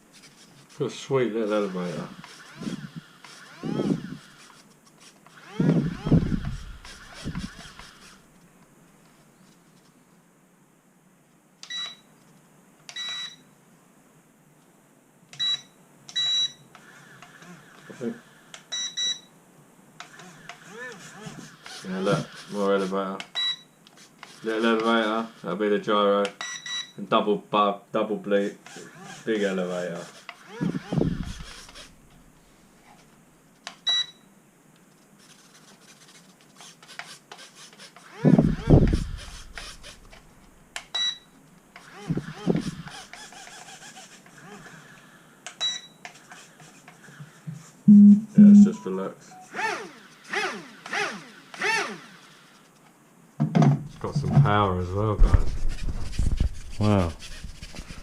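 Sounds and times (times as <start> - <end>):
short high beeps: 47.9 - 49.6.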